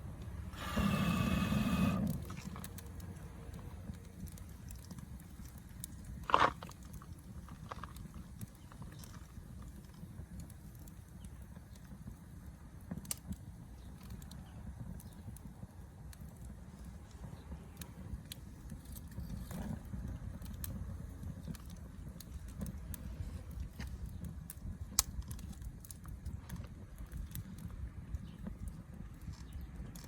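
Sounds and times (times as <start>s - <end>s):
campfire crackling: 0.0s - 30.0s.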